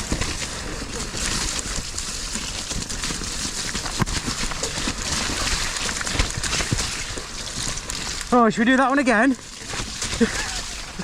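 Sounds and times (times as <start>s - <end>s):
bike knocking over bumps: 0.0s - 8.3s
bike chain and frame rattling: 0.0s - 11.0s
bike tyres running through mud: 0.0s - 11.0s.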